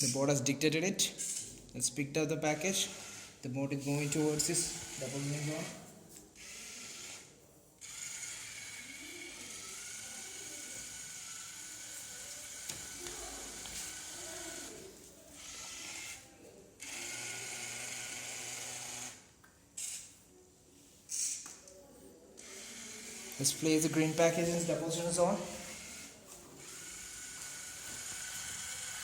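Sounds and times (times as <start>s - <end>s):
robot motors whirring: 6.4s - 14.8s, 15.4s - 19.2s, 22.4s - 24.7s, 25.4s - 29.0s.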